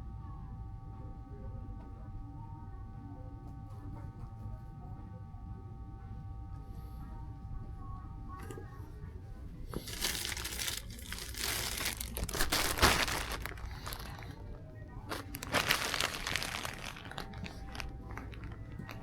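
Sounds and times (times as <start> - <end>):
faint background music: 0.0 - 19.0
packaging crinkling: 9.7 - 19.0.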